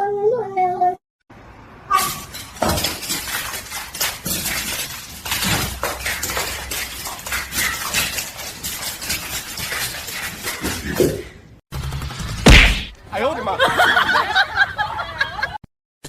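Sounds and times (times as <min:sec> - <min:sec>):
hard objects clattering and clinking: 0:02.0 - 0:11.4.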